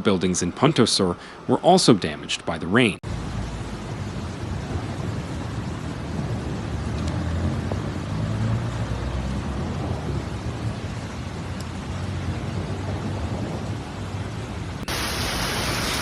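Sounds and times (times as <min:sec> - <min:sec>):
heavy rainstorm: 0:03.0 - 0:16.0
running floodwater: 0:14.8 - 0:16.0.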